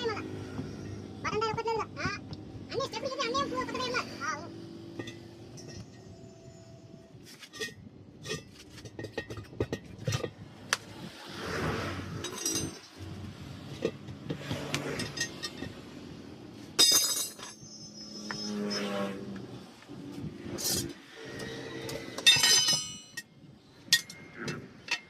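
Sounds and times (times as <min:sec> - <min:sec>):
hard objects clinking and knocking: 0:04.8 - 0:06.1, 0:07.3 - 0:10.9, 0:12.2 - 0:16.0, 0:16.7 - 0:18.5, 0:20.5 - 0:25.0.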